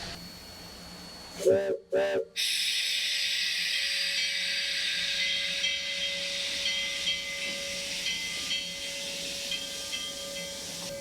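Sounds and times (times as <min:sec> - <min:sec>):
steam hissing: 0:02.4 - 0:11.0.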